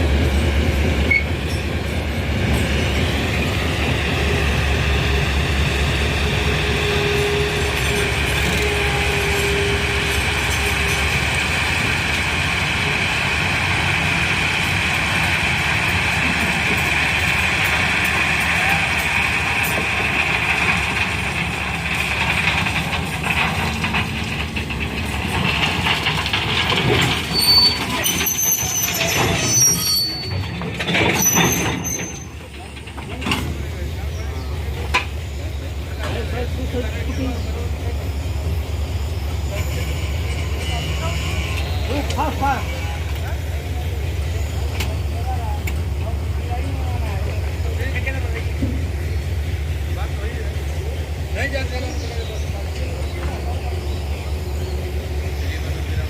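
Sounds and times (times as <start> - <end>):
rail vehicle rumbling: 0.0 - 56.0
high-pitched wheel squeals: 1.1 - 1.6, 6.4 - 11.1, 27.2 - 32.6.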